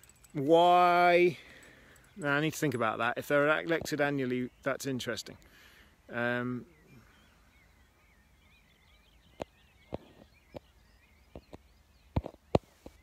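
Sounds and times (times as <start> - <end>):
faint wavering birdsong: 0.0 - 13.0.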